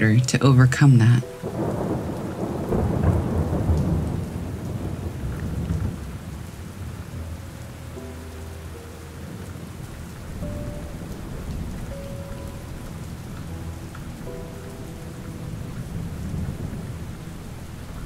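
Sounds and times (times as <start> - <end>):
soft background music: 0.0 - 18.0
steady rain falling: 0.0 - 18.0
low rumble of thunder: 1.2 - 8.2, 9.2 - 18.0.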